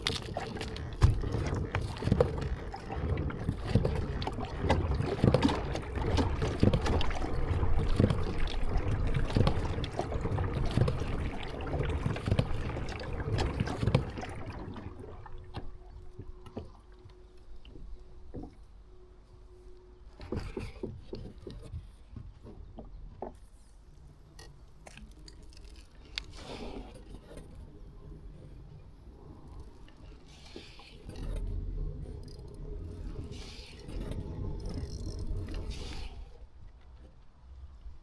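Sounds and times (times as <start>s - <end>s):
paddle splashing water: 0.0s - 23.8s, 24.6s - 37.7s
faint steady tone: 6.9s - 22.0s.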